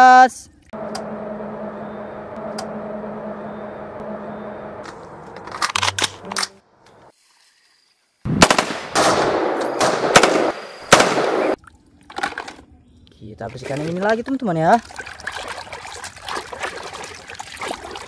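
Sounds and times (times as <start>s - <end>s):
low hum: 0.6s - 7.1s
automatic rifle fire: 8.3s - 11.6s.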